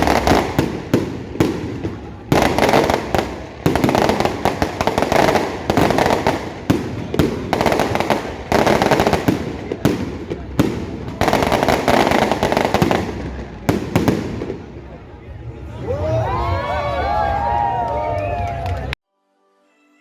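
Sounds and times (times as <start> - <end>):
fireworks sharp bangs: 0.0 - 15.1
fireworks crackling: 0.0 - 15.6.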